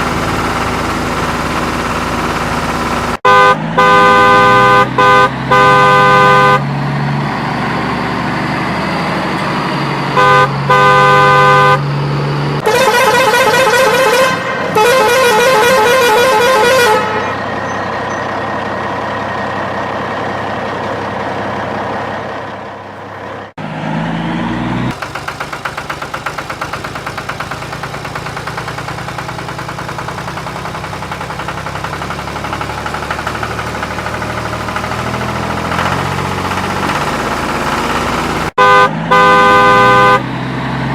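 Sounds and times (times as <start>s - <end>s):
engine hum: 0.0s - 40.9s
engine running with rapid pulse: 0.0s - 40.9s
vehicle horn blasts: 3.2s - 6.8s, 10.1s - 11.9s, 12.6s - 18.3s, 38.6s - 40.2s
warbling multi-tone horn: 3.2s - 6.8s, 10.1s - 11.9s, 12.6s - 18.4s, 38.6s - 40.2s.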